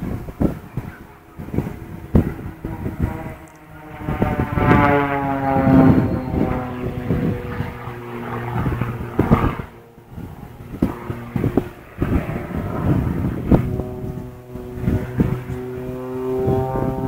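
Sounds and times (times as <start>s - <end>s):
propeller airplane flying by: 0.0s - 17.0s.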